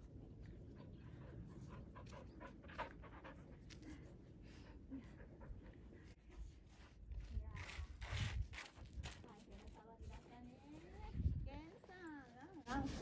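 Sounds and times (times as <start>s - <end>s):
dog panting: 0.5s - 6.2s.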